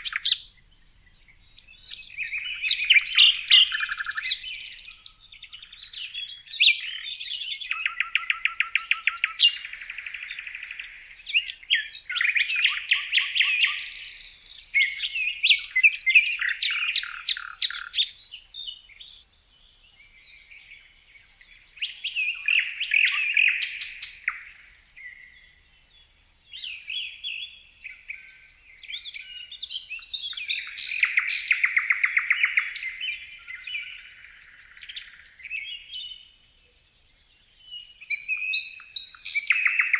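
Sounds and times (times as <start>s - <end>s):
songbird trilling and chirping: 0.0s - 39.9s.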